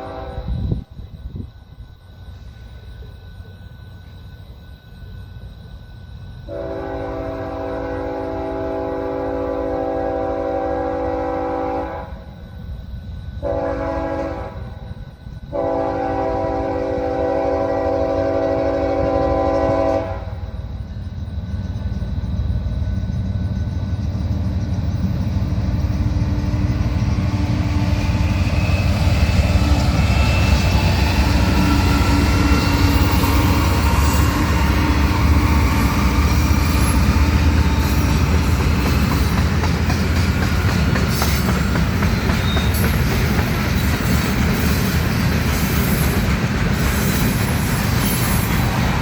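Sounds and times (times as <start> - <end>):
locomotive air horn chord: 0.0 - 0.8, 6.5 - 12.3, 13.4 - 14.7, 15.5 - 20.5
train wheel noise: 0.0 - 49.0
locomotive engine rumble: 12.6 - 49.0.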